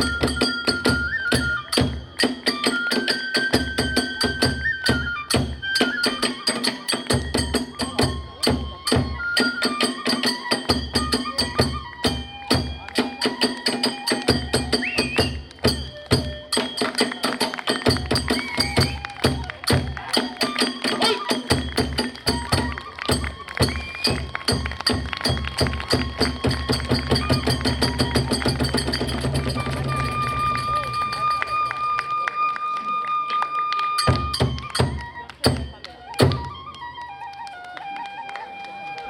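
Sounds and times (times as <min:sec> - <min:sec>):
taiko drum beats: 0:00.0 - 0:31.9, 0:34.0 - 0:36.7
bamboo flute melody: 0:00.0 - 0:39.0.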